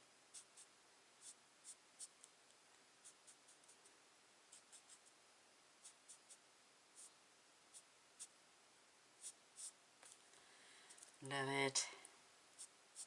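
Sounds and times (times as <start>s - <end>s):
marker tip scratching on card: 0.3s - 2.3s, 4.5s - 5.1s, 5.8s - 6.4s, 9.2s - 9.8s.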